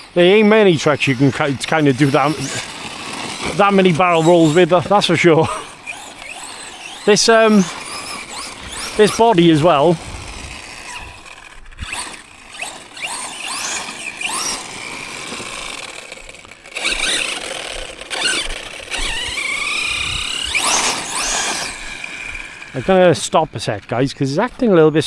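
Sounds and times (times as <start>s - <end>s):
electric motor whining: 0.0s - 24.7s.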